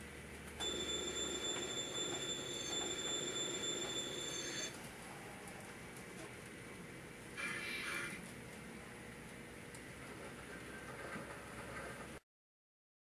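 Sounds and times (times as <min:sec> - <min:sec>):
train squeal: 0:01.4 - 0:04.7
train rumble: 0:09.9 - 0:12.2.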